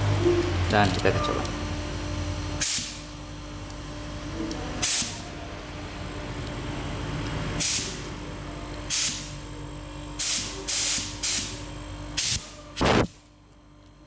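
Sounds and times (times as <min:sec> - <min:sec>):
steady background hum: 0:00.0 - 0:14.0
compressed air hissing from hose: 0:02.6 - 0:03.0, 0:04.8 - 0:05.2, 0:10.2 - 0:11.5, 0:12.2 - 0:13.1.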